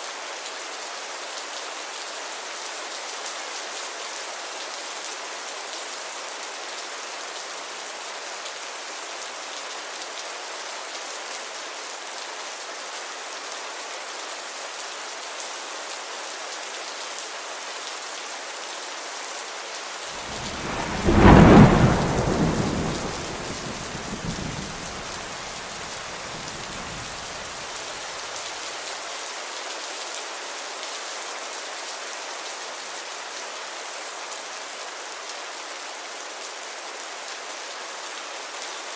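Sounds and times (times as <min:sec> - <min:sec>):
steady rainfall hissing: 0:15.1 - 0:30.4
thunder rumble: 0:20.2 - 0:27.7.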